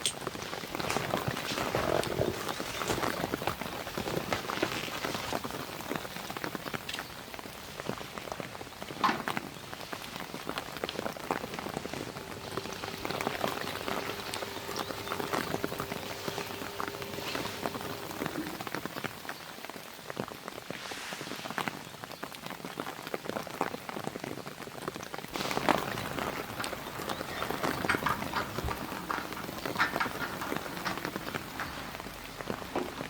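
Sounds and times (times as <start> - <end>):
rain pattering: 0.0 - 33.0
faint steady hum: 11.4 - 19.2.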